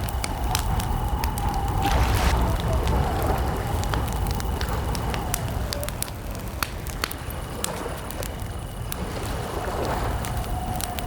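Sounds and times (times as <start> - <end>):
campfire crackling and popping: 0.0 - 11.0
low rumble: 0.5 - 5.6.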